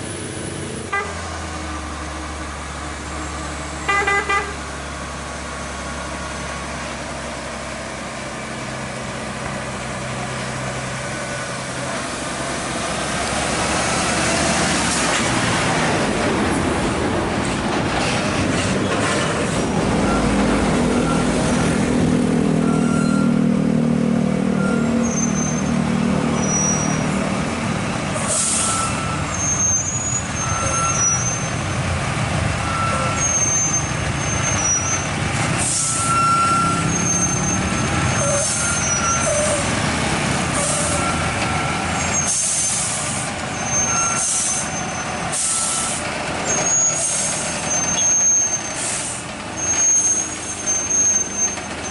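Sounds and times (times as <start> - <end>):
diesel truck engine running: 0.0 - 51.9
high-pitched squeaks: 24.6 - 27.2, 32.8 - 35.1, 35.8 - 39.7, 43.6 - 48.8, 49.6 - 51.9
air brake hisses: 28.2 - 28.9, 35.6 - 36.0, 45.3 - 46.1, 48.6 - 49.3.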